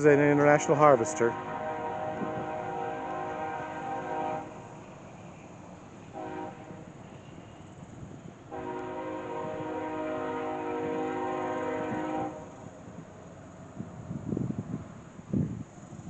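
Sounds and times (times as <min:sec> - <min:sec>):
train horn blasts: 0:00.4 - 0:04.9, 0:06.1 - 0:07.7, 0:08.5 - 0:12.7.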